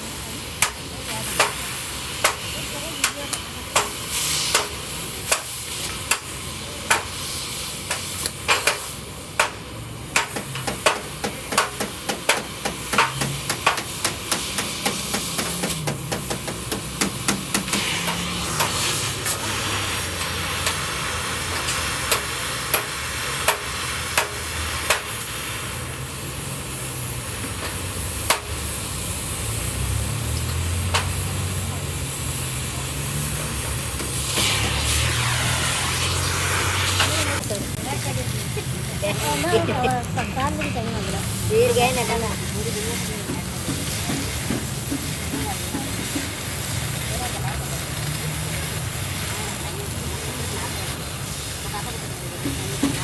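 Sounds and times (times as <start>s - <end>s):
steady hiss: 0.0s - 53.0s
hammer striking sheet metal: 23.5s - 25.1s.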